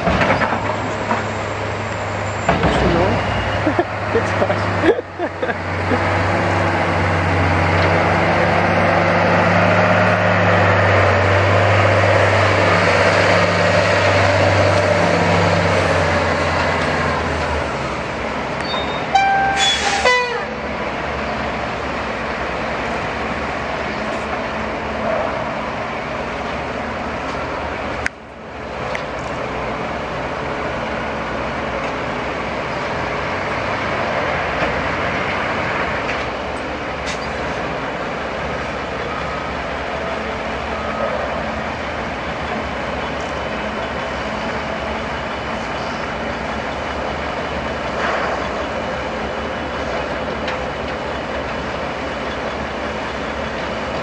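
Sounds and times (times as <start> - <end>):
dump truck diesel engine: 0.0 - 54.0
vehicle horn toot: 18.7 - 20.6.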